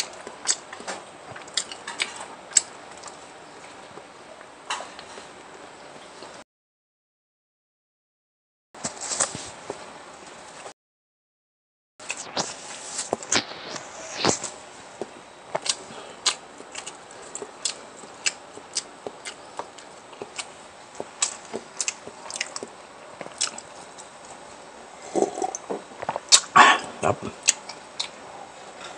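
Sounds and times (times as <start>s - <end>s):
person chewing crunchy food: 0.0s - 3.2s, 13.1s - 28.9s
wet mouth sounds: 25.1s - 28.2s.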